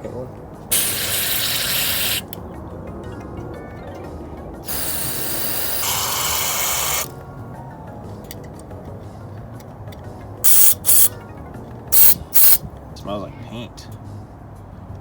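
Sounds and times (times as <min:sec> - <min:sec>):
aerosol spray hissing: 0:00.7 - 0:02.3, 0:04.7 - 0:07.1, 0:10.5 - 0:11.1, 0:12.0 - 0:12.6.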